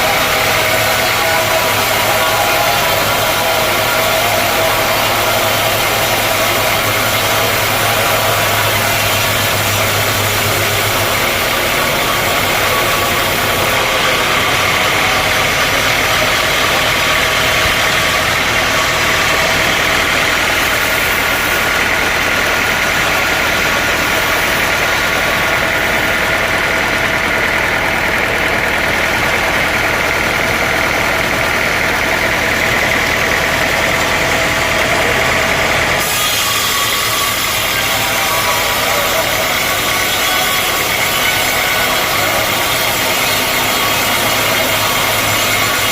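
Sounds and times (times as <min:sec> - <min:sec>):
sawmill machinery whining: 0:00.0 - 0:45.9.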